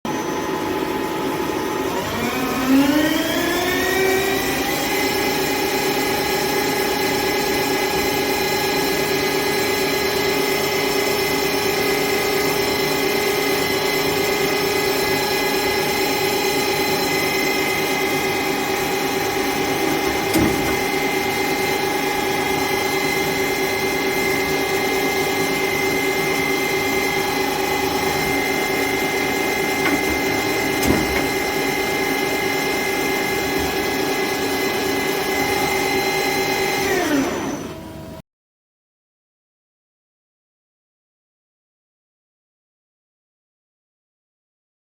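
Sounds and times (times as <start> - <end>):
lathe spindle whine: 0.1 - 38.2.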